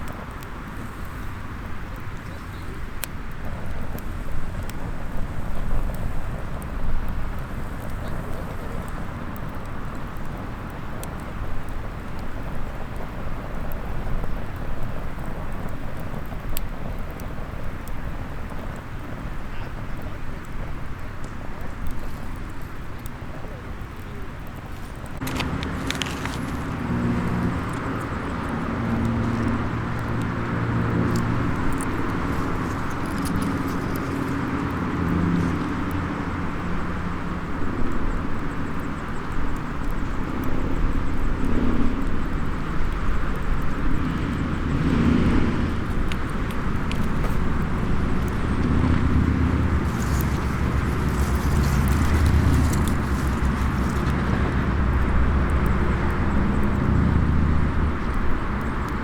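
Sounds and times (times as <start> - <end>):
wood fire crackling: 0.0 - 59.0
passing motor traffic: 24.3 - 39.3, 40.3 - 59.0.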